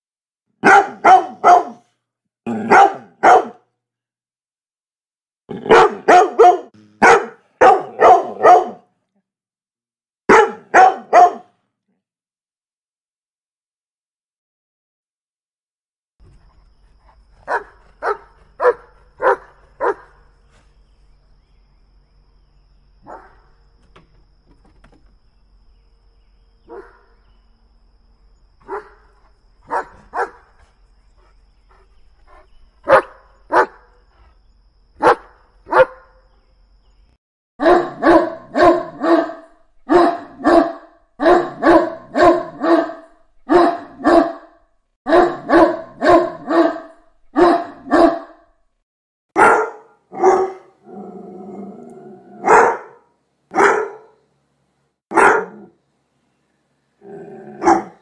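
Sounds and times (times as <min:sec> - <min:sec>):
dog barking: 0:00.6 - 0:01.9, 0:02.5 - 0:03.7, 0:05.5 - 0:08.9, 0:10.3 - 0:11.6, 0:17.5 - 0:20.2, 0:23.0 - 0:23.5, 0:26.7 - 0:27.2, 0:28.6 - 0:30.5, 0:31.2 - 0:34.0, 0:35.0 - 0:36.2, 0:37.6 - 0:48.5, 0:49.4 - 0:50.8, 0:52.4 - 0:54.2, 0:55.1 - 0:55.8, 0:57.5 - 0:58.0
large dog barking in rapid runs: 0:00.6 - 0:01.9, 0:02.5 - 0:03.6, 0:05.6 - 0:08.8, 0:10.3 - 0:11.5, 0:17.4 - 0:20.3, 0:28.6 - 0:30.6, 0:32.8 - 0:33.9, 0:35.0 - 0:36.2, 0:37.6 - 0:44.5, 0:45.1 - 0:48.4, 0:49.4 - 0:50.7, 0:52.4 - 0:54.2, 0:55.1 - 0:55.7, 0:57.6 - 0:58.0
faint low hum: 0:16.2 - 0:37.1.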